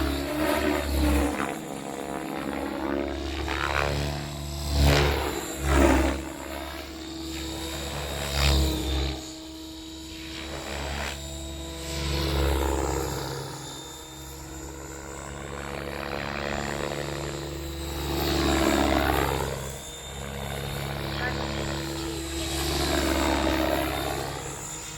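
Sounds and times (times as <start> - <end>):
rc helicopter rotor and motor hum: 0.0 - 24.9.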